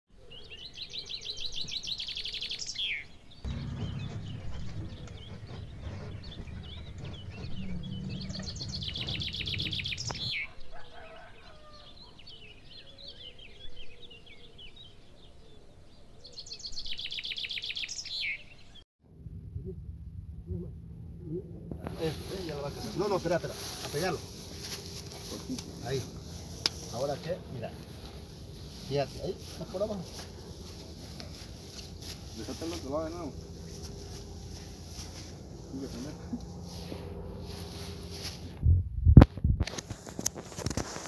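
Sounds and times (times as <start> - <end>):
soft bird chirps: 0.2 - 18.8
bird trilling: 2.3 - 10.6
low rumble: 3.5 - 10.3, 19.0 - 40.5.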